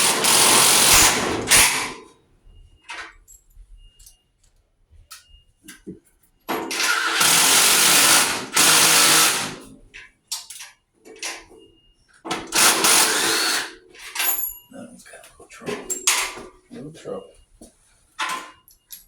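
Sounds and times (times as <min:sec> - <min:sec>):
power drill running: 0:00.0 - 0:02.0, 0:06.7 - 0:09.6, 0:12.5 - 0:13.7.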